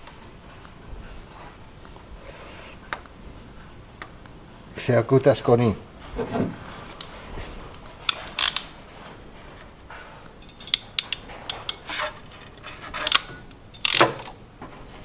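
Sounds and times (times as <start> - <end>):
hand tools clicking and snipping: 6.6 - 14.5.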